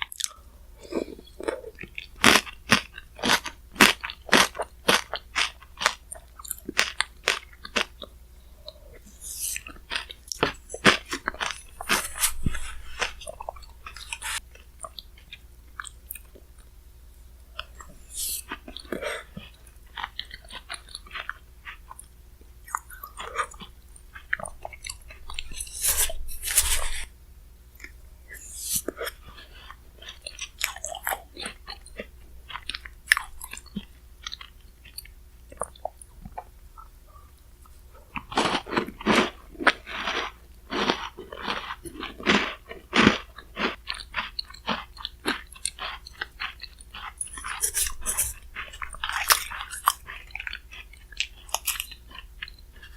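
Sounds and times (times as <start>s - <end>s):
crisp crunching and chewing: 0.0s - 16.8s, 17.5s - 27.1s, 27.8s - 52.9s
scraping sounds: 10.7s - 14.4s, 17.9s - 18.5s, 25.1s - 27.1s, 47.2s - 50.0s.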